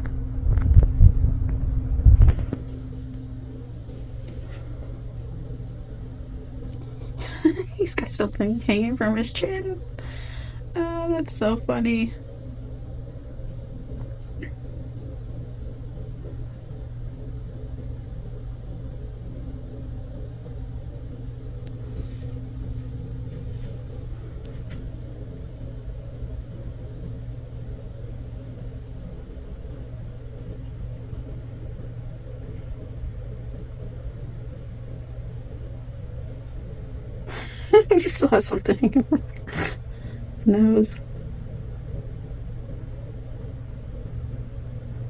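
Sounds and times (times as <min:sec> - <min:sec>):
low mechanical drone: 0:00.0 - 0:45.0
faint clicks: 0:21.6 - 0:21.8.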